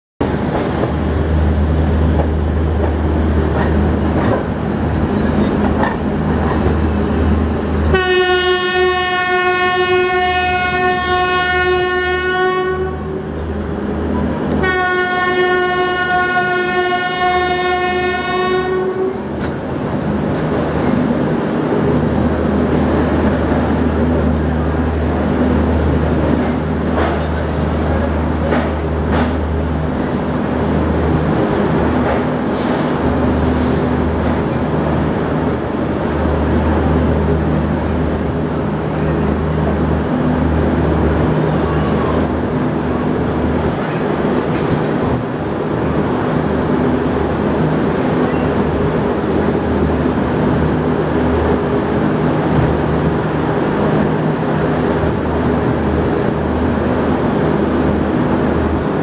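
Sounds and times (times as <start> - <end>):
train rumble and wheel clatter: 0.2 - 59.0
train horn blasts: 7.9 - 13.3, 14.6 - 19.3.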